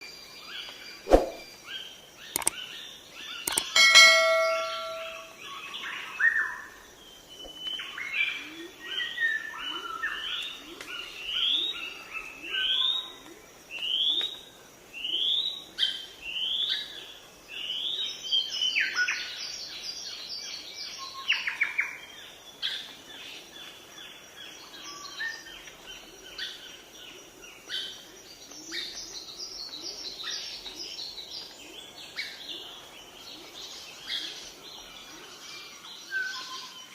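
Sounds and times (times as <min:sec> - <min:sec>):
birds chirping: 0:00.6 - 0:06.3
rising whistled bird notes: 0:01.1 - 0:01.5
ringing bell-like tone: 0:03.6 - 0:05.4.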